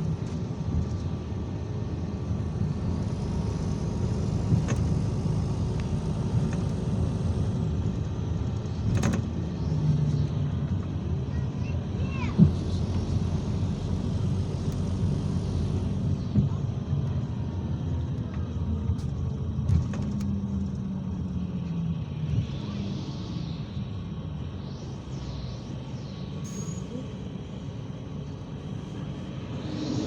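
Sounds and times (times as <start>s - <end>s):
bus engine and road rumble: 0.0s - 30.0s
short falling squeal: 26.3s - 27.3s.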